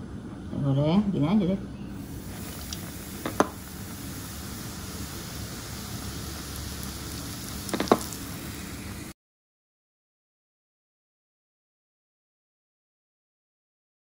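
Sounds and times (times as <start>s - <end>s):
fish frying in oil: 2.0s - 9.2s.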